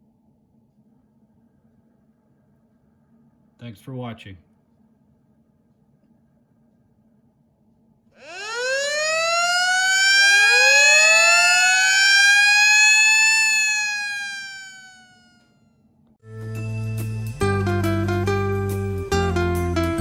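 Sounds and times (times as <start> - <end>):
wailing siren: 8.2 - 15.6.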